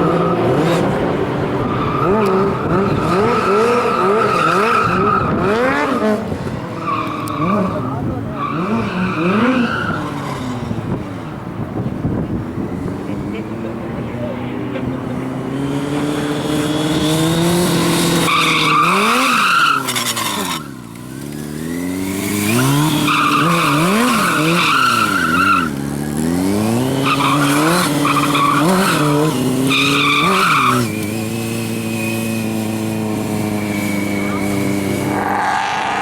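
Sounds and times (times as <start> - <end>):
engine revving: 12.9 - 36.0
tyres squealing: 17.7 - 20.9, 22.2 - 25.8, 27.0 - 36.0.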